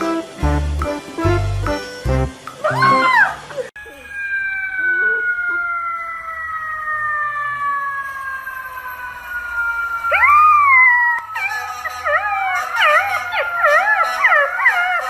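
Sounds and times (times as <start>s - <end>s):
siren-like wail: 2.6s - 15.0s
dog howling: 2.7s - 8.0s, 9.7s - 15.0s.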